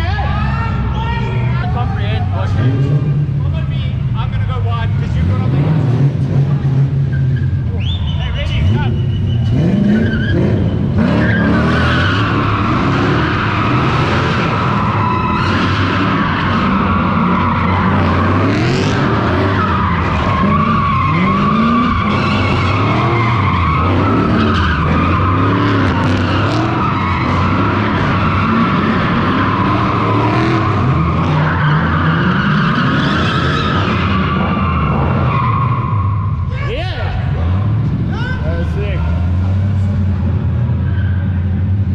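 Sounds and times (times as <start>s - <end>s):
car engine revving: 0.0s - 41.9s
tyres squealing: 7.0s - 36.7s.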